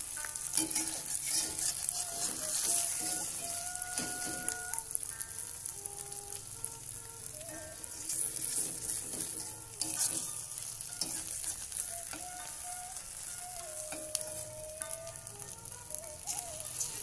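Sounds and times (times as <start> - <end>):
spatula scraping a wok: 0.0 - 5.5, 7.5 - 14.5, 16.2 - 17.0
omelette sizzling in oil: 0.0 - 17.0.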